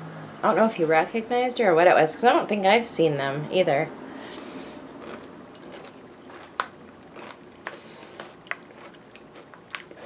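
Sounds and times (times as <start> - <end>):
chewing and crunching granola: 5.0 - 10.0.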